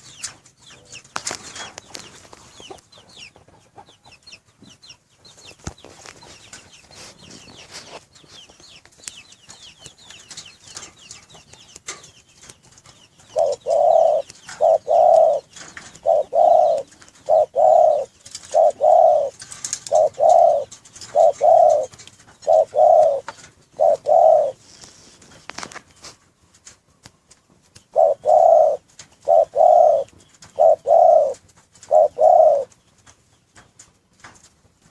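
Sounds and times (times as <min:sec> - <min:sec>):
dove cooing: 0:13.3 - 0:24.8, 0:27.9 - 0:32.7.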